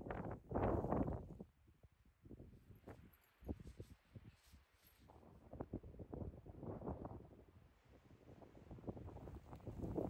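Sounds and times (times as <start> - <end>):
gusty wind buffeting microphone: 0.0 - 1.4, 8.6 - 10.0.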